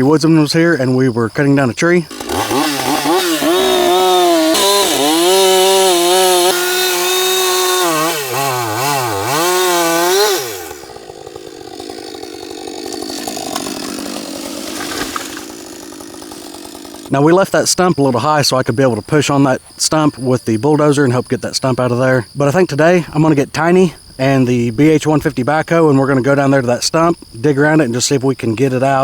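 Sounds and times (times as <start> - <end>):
chainsaw cutting: 1.8 - 18.0.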